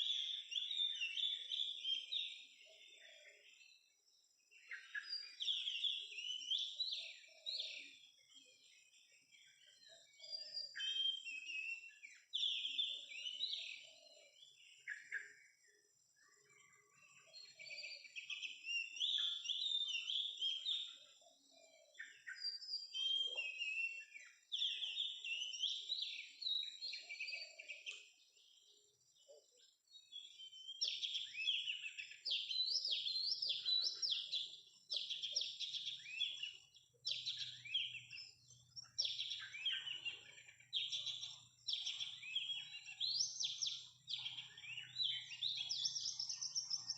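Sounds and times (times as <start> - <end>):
bird singing whistled phrases: 4.7 - 8.0, 9.7 - 15.3, 17.3 - 21.0, 21.9 - 28.1, 30.1 - 46.9.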